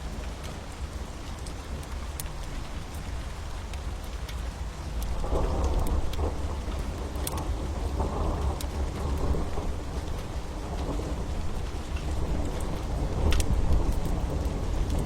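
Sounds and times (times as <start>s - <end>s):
steady rain: 0.0s - 15.0s
wood fire crackling: 1.3s - 7.4s, 10.8s - 15.0s.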